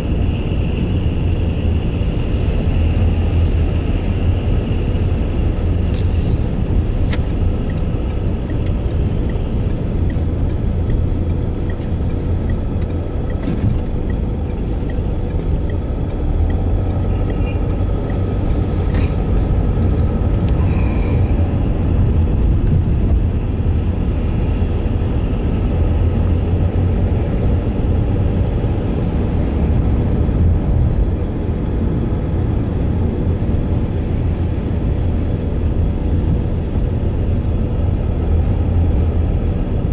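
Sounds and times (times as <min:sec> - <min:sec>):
car rumbling on the move: 0:00.0 - 0:39.9
light regular ticks: 0:07.0 - 0:20.0.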